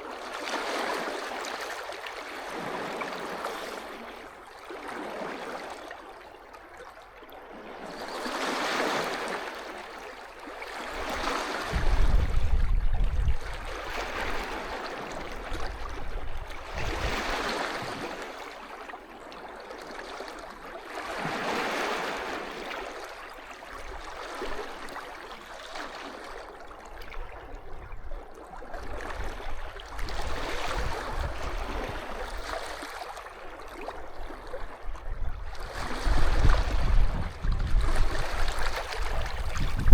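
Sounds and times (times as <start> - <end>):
sea waves washing onto shore: 7.8 - 18.7, 35.5 - 39.9
low gusty rumbling: 39.4 - 39.9.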